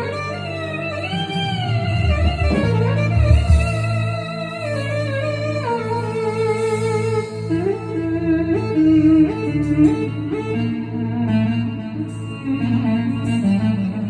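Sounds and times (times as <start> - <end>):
keyboard clarinet melody: 0.0 - 14.0
steady low drone: 0.0 - 14.0.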